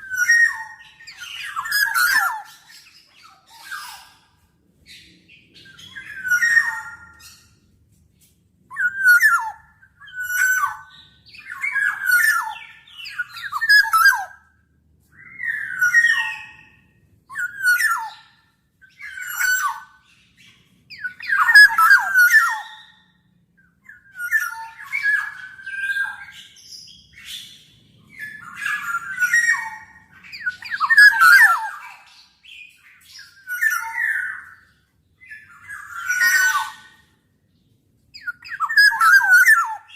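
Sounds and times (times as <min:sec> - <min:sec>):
bird giving harsh calls: 0:38.2 - 0:39.9.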